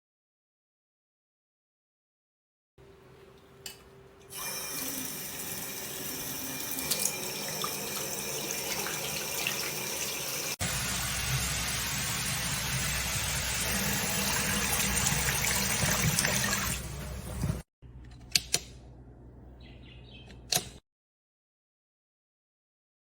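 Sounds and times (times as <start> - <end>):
water running into sink: 4.3 - 17.6.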